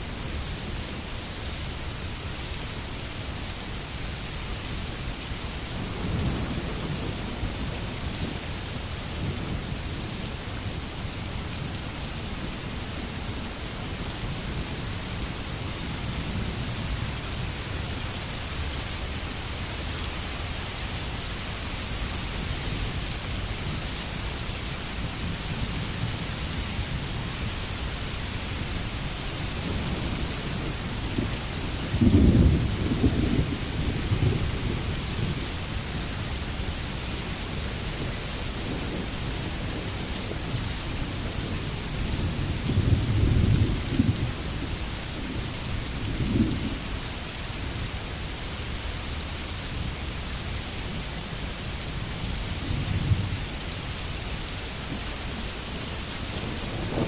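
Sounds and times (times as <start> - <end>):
rain hissing: 0.0 - 57.0
thunder rumbling: 28.8 - 35.6, 41.2 - 46.9, 56.2 - 57.0.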